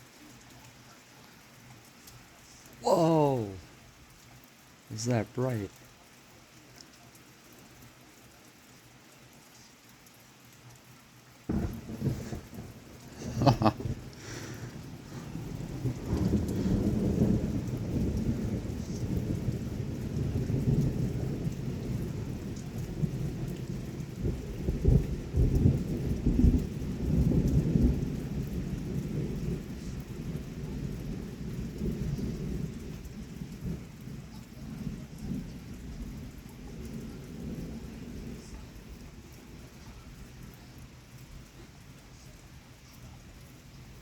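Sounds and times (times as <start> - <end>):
rolling thunder rumble: 11.5 - 40.5.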